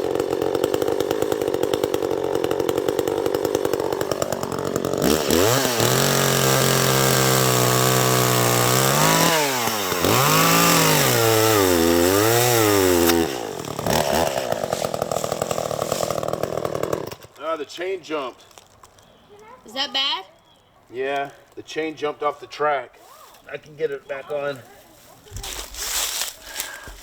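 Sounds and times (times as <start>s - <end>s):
chainsaw revving: 0.0s - 18.0s, 23.4s - 27.0s.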